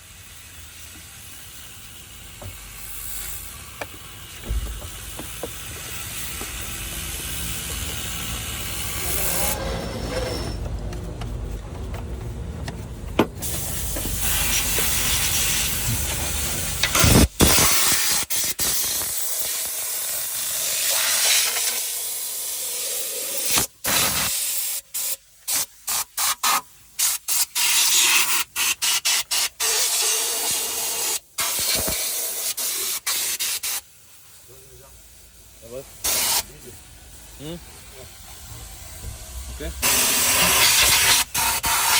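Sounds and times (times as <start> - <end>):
spray gun hissing: 13.4 - 34.7, 35.6 - 41.9.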